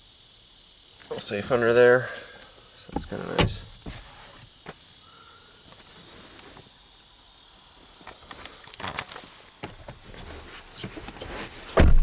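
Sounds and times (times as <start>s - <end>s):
high outdoor hiss: 0.0s - 12.0s
light knocks and rustles: 2.9s - 4.8s.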